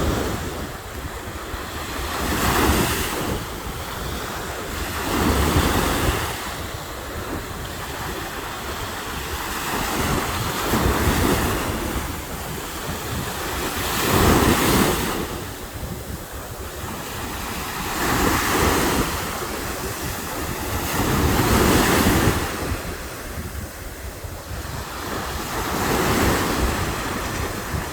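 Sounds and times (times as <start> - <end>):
surf breaking on a beach: 0.0 - 27.9
wind buffeting microphone: 0.0 - 27.9.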